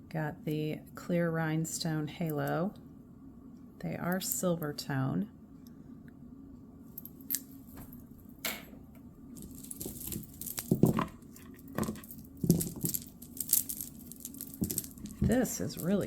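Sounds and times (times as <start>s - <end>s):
jewelry clicking and clinking: 6.9s - 8.1s, 9.3s - 16.0s.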